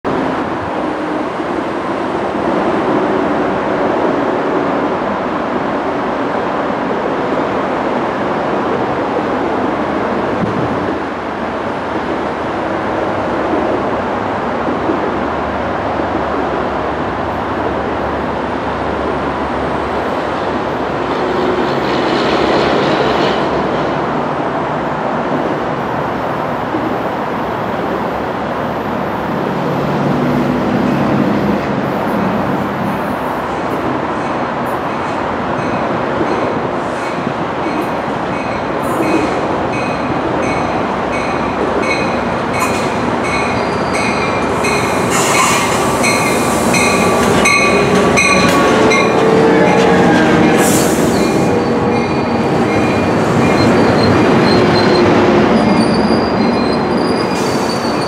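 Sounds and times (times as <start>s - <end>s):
train rumble: 0.1s - 58.0s.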